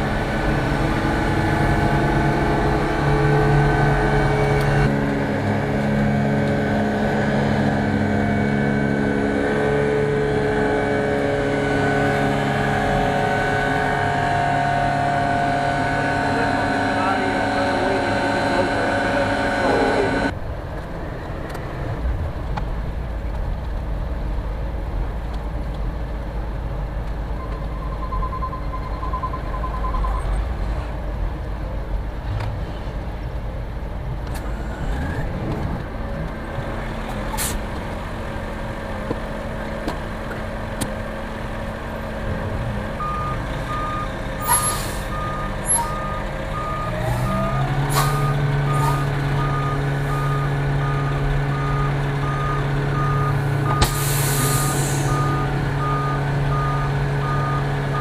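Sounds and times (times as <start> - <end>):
diesel engine idling: 0.0 - 20.4, 35.8 - 58.0
engine revving: 0.0 - 20.4, 34.3 - 58.0
reversing alarm beeping: 27.4 - 30.3, 43.0 - 58.0
short air hisses: 53.8 - 55.2.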